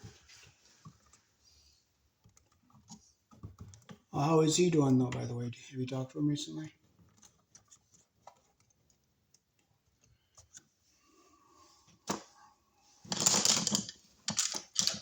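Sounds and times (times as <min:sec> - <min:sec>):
rustling and scraping of tools: 0:00.0 - 0:04.0, 0:10.0 - 0:15.0.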